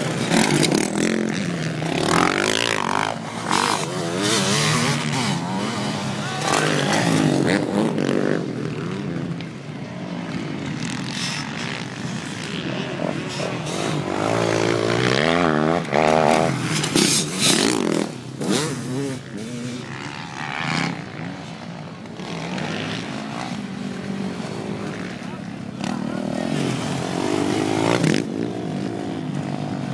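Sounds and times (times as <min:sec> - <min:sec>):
motocross bike engines revving: 0:00.0 - 0:29.9.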